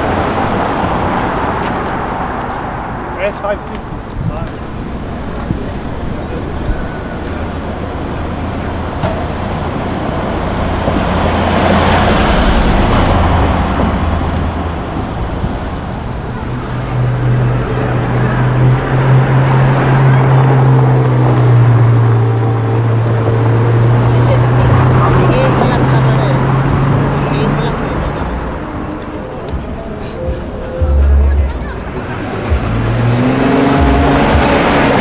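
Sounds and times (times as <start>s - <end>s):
vehicle passing: 0.0s - 35.0s
deep steady engine drone: 2.0s - 35.0s.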